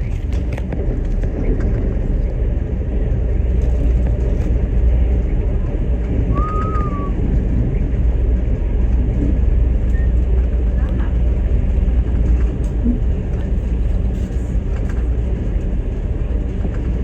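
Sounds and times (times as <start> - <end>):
vehicle engine rumble: 0.0 - 17.0
high whistle-like tone: 6.3 - 7.2.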